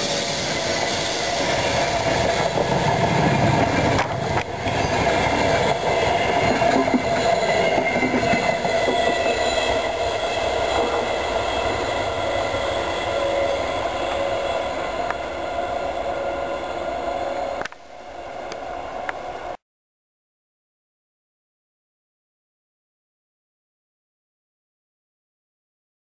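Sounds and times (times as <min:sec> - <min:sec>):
train wheels rushing on rail: 0:00.0 - 0:19.6.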